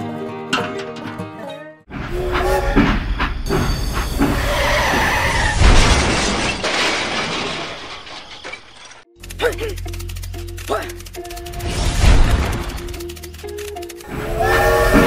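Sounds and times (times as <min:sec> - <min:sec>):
train crash clattering: 0:01.9 - 0:09.1
metal squeal: 0:02.0 - 0:05.7, 0:14.0 - 0:15.0.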